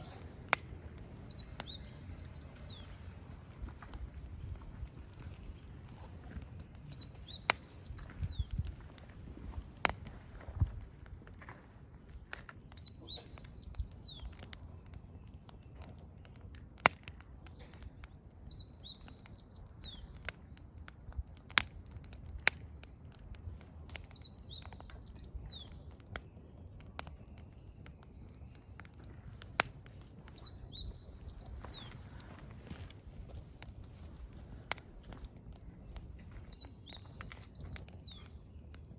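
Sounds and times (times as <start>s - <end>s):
songbird singing: 0.0s - 3.1s, 5.0s - 9.1s, 12.6s - 16.5s, 17.6s - 22.9s, 24.0s - 33.8s, 34.4s - 38.9s
firewood crackling and popping: 0.0s - 38.9s.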